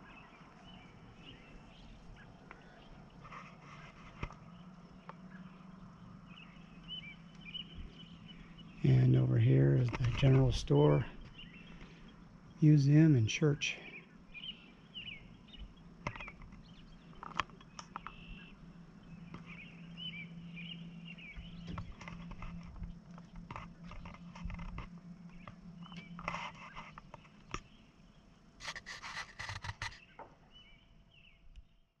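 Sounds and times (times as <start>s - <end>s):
steady low hum: 0.0s - 31.9s
small birds chirping: 0.0s - 32.0s
scattered clicks: 9.7s - 10.8s, 16.0s - 18.2s.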